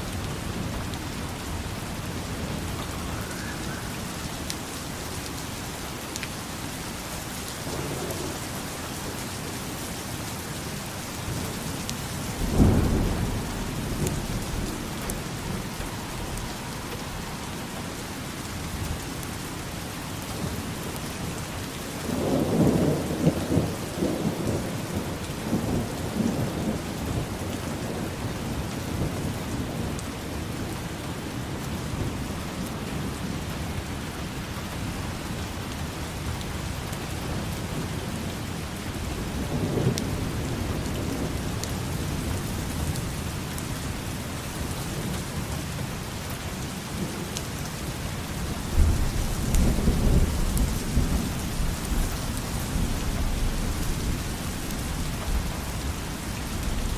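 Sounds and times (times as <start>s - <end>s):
steady rain falling: 0.0s - 56.9s
thunder rumbling: 7.2s - 19.1s, 48.3s - 56.9s.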